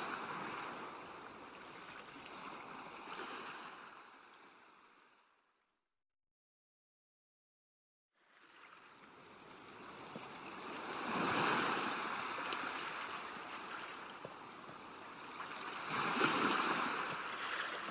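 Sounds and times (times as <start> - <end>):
ocean waves washing in: 8.3 - 17.9.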